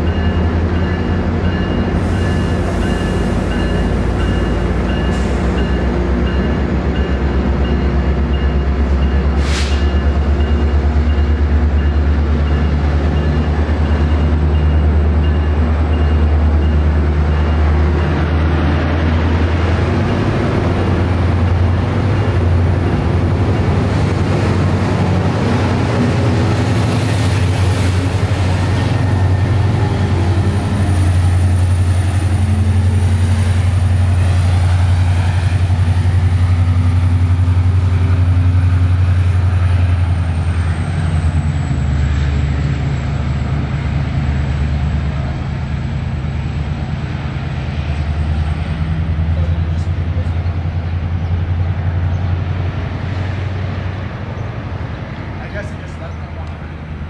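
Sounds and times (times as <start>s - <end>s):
diesel locomotive engine drone: 0.0s - 57.0s
train coaches rolling: 0.0s - 57.0s
brief hiss: 9.4s - 9.8s.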